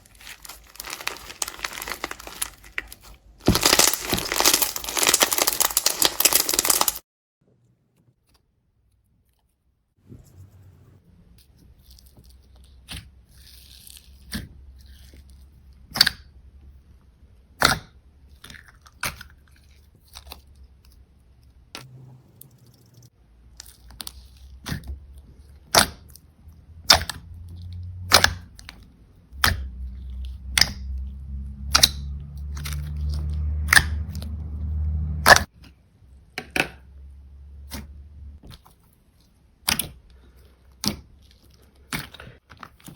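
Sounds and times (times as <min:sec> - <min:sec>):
slime clicking and popping: 0:00.0 - 0:07.0, 0:26.8 - 0:27.2, 0:28.1 - 0:28.8, 0:39.6 - 0:40.0
low rumble: 0:29.4 - 0:35.5.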